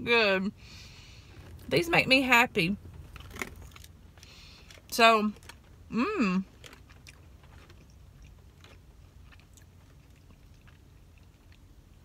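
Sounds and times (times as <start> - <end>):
chewing with mouth clicks: 3.0 - 5.8, 6.4 - 12.0.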